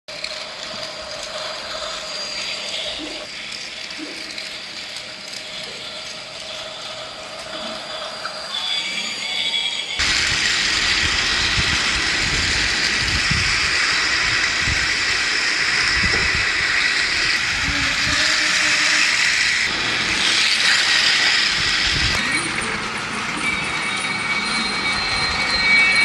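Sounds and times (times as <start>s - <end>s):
plastic wheels rattling on rails: 0.1s - 7.8s
toy train motors whirring: 0.1s - 26.0s.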